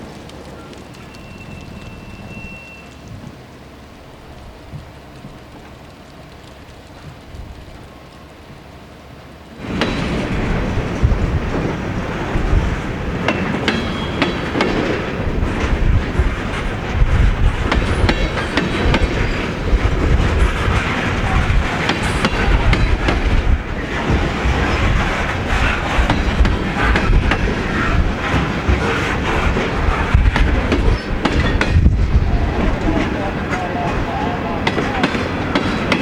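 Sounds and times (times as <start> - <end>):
high metallic squeals: 1.0 - 3.0
train wheels clacking over rails: 9.6 - 36.0.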